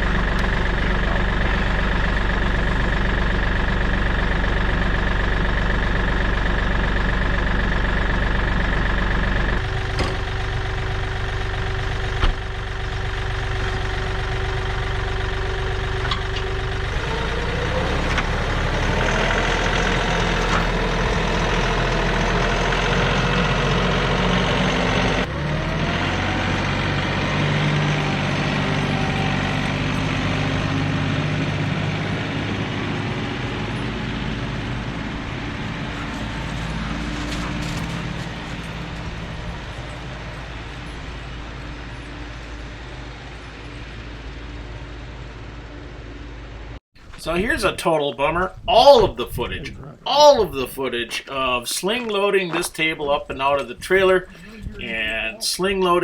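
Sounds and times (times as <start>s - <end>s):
vehicle engine revving: 0.0s - 44.7s.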